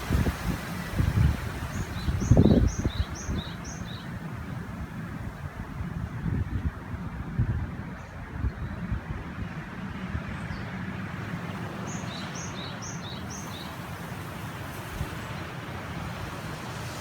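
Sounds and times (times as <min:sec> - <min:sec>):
mountain river rushing: 0:00.0 - 0:05.1, 0:10.9 - 0:17.0
wind rumbling on microphone: 0:00.0 - 0:17.0.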